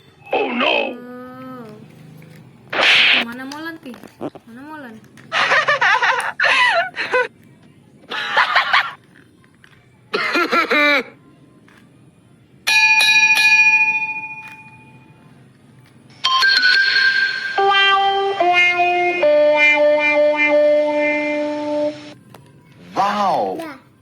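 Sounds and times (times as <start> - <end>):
high wavering voice: 0.3 - 1.4
electronic bell-like chime: 16.2 - 17.8
simple electronic tune: 16.2 - 22.2.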